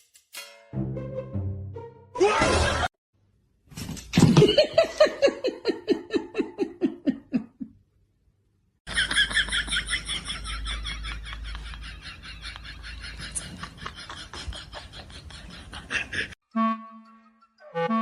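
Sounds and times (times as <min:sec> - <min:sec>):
person laughing hard: 0:04.3 - 0:07.7, 0:08.9 - 0:16.4.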